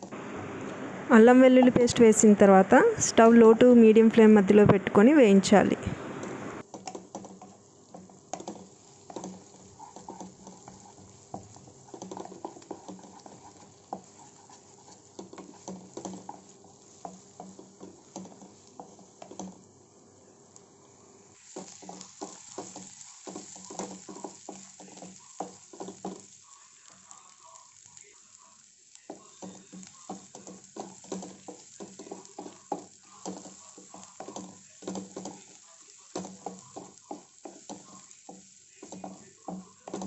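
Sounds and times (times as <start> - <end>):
spatula scraping pan: 6.6 - 19.6, 21.4 - 27.9, 29.1 - 40.0
onions sizzling in oil: 6.6 - 40.0.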